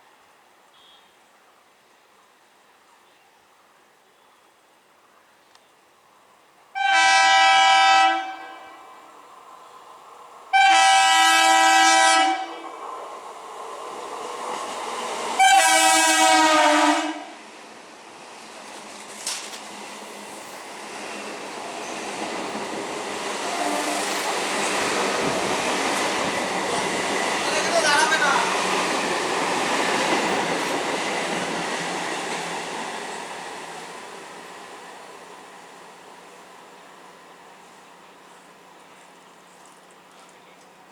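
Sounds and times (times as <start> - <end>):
train horn blasts: 0.7 - 1.1, 6.8 - 9.0, 10.5 - 12.6, 15.4 - 17.4, 23.5 - 24.2
approaching train rumble: 6.7 - 40.9.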